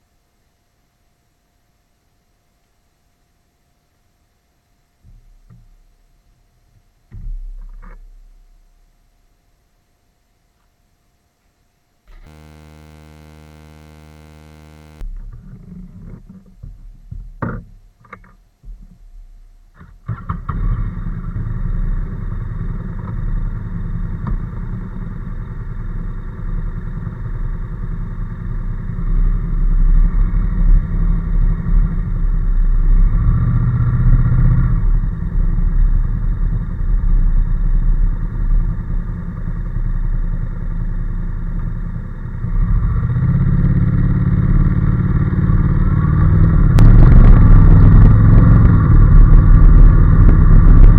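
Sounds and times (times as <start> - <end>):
motorcycle engine running: 12.1 - 16.0, 20.3 - 50.9
road and wind noise: 20.4 - 50.9.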